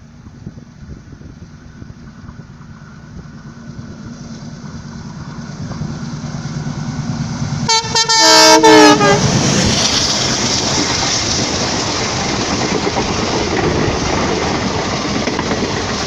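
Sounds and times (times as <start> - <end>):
train rumbling: 0.0 - 16.0
train horn: 7.6 - 9.6.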